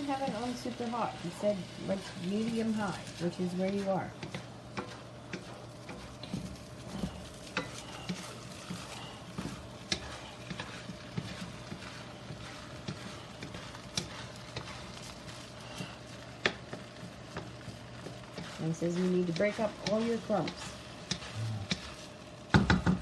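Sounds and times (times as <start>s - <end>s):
light sizzling: 0.0s - 23.0s
spatula scraping a wok: 0.0s - 23.0s
spatula clicking against pan: 4.2s - 6.0s, 9.8s - 11.8s, 16.4s - 18.5s.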